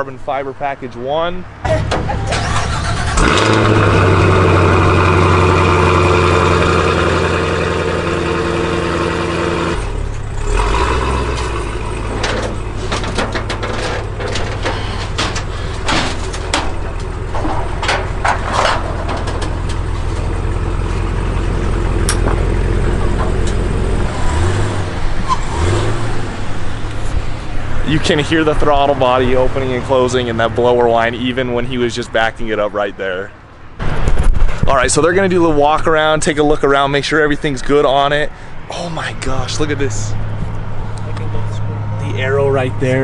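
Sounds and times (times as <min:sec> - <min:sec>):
car engine idling: 0:01.6 - 0:25.5
supercharger whine: 0:02.2 - 0:30.3
clanks on metal ramps: 0:11.2 - 0:21.4.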